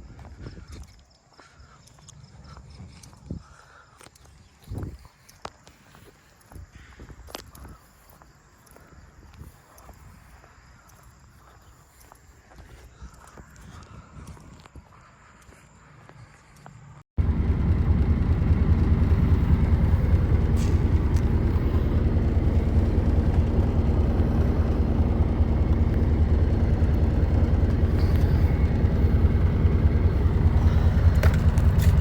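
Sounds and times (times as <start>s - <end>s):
low engine and road rumble: 17.0s - 32.0s.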